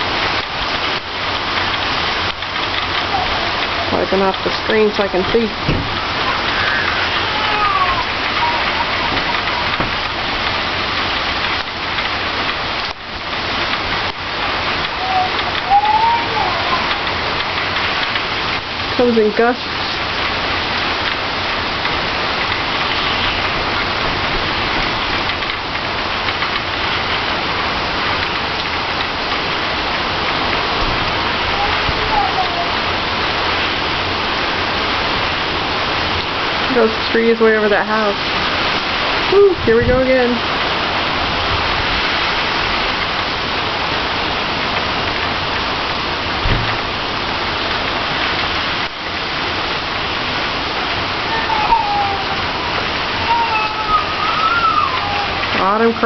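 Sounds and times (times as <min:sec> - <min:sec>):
heavy rain: 0:00.0 - 0:56.0
storm wind gusts: 0:00.0 - 0:56.0
low thump: 0:05.6 - 0:06.0, 0:46.4 - 0:46.9.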